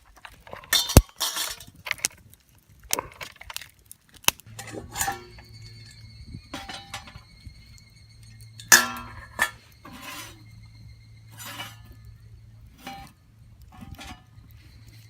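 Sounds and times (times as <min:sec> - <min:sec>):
cooking gear clinking: 0:04.3 - 0:15.0
scraping and rustling: 0:04.4 - 0:15.0.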